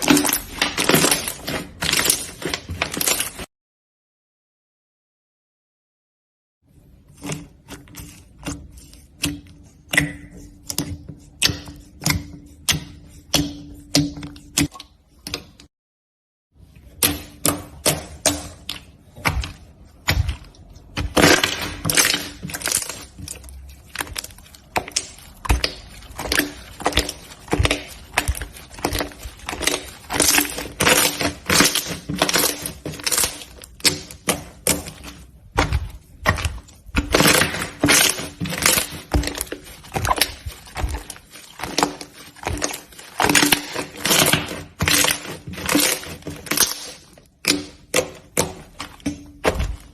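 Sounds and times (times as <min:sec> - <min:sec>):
slime crackling and popping: 0:00.0 - 0:03.5, 0:17.8 - 0:49.9.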